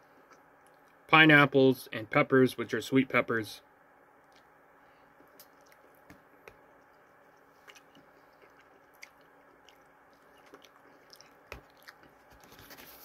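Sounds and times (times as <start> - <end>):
faint chewing food: 0.1 - 1.0, 4.2 - 13.0.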